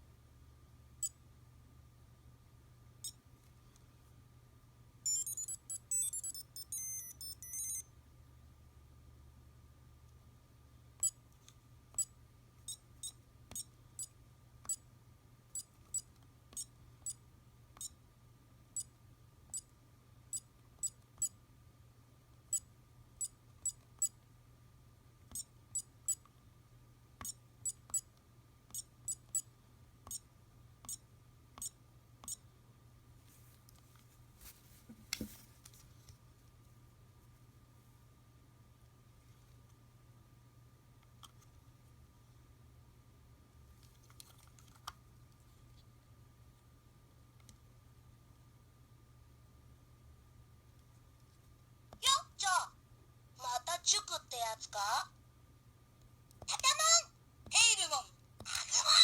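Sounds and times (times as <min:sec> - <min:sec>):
faint steady hum: 0:00.0 - 0:59.0
handling rustle: 0:33.2 - 0:36.2.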